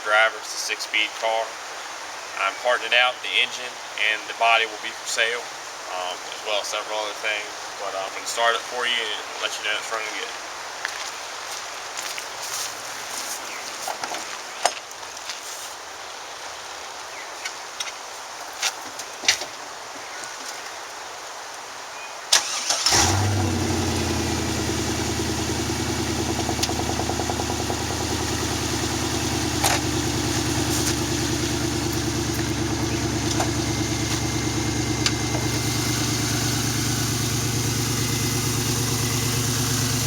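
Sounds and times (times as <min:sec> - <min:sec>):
loud car engine starting and idling: 0:22.4 - 0:40.0.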